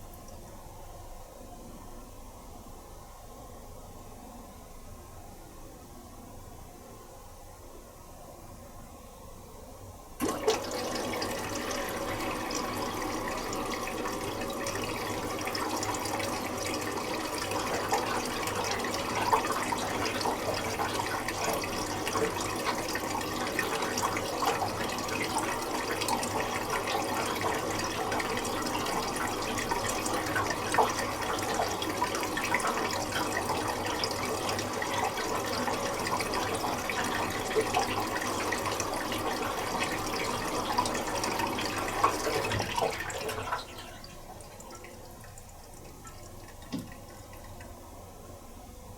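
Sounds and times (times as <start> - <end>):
water rushing into washing machine: 10.2 - 48.3.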